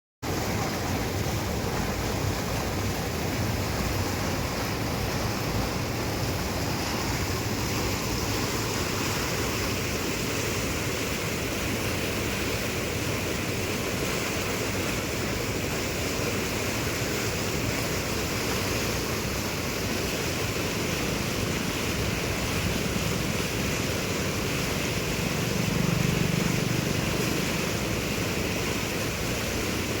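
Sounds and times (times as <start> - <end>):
river water rushing: 0.2 - 30.0.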